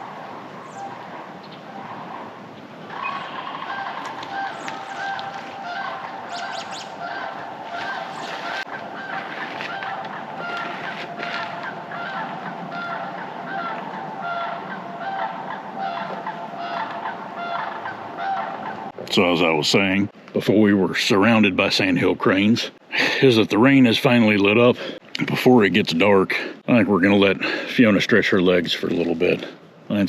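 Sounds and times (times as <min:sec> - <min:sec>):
cranes calling: 0:00.0 - 0:19.6.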